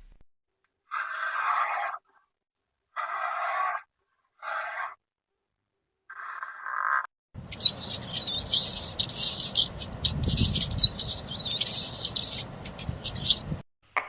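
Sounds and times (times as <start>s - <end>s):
small birds chirping: 7.4s - 13.6s.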